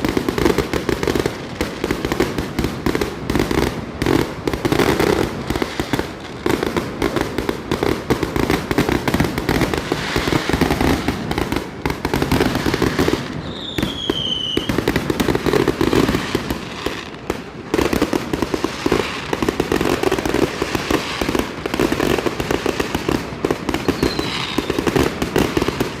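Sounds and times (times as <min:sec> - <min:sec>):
fireworks popping and banging: 0:00.0 - 0:26.0
falling firework whistle: 0:12.7 - 0:17.2, 0:23.8 - 0:25.0.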